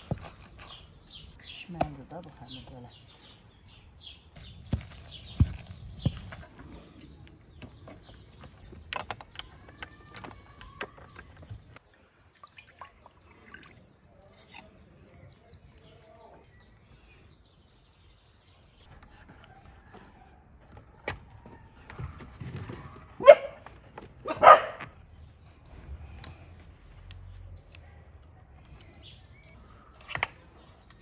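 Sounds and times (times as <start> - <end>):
small bird chirping: 0.0 - 21.0.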